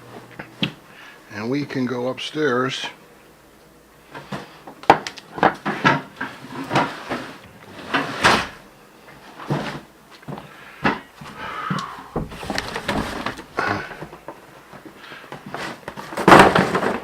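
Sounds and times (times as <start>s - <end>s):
kitchen items knocking and clattering: 4.9s - 7.0s, 12.1s - 14.2s, 15.9s - 17.0s.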